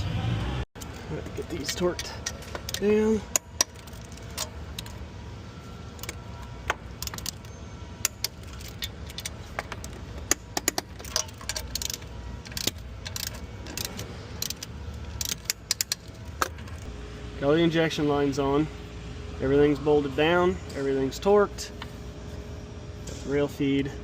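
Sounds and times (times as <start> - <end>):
low hum: 0.0 - 24.0
wrench clinking against metal: 1.4 - 5.0, 6.0 - 16.9.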